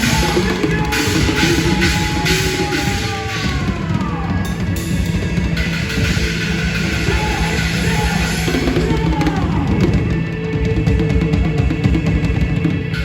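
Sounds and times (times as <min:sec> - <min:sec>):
band music: 0:00.0 - 0:13.0
drum kit and bass beat: 0:00.0 - 0:13.0.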